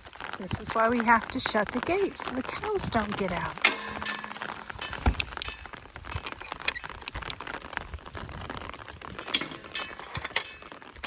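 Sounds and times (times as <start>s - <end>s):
metal gate clinks and knocks: 3.6s - 5.7s, 9.2s - 10.9s.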